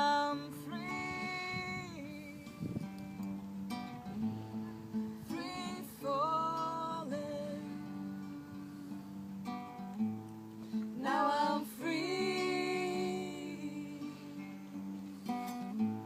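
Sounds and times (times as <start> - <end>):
acoustic guitar strumming: 0.0 - 16.0
voices singing in harmony: 5.2 - 9.0, 10.9 - 15.1.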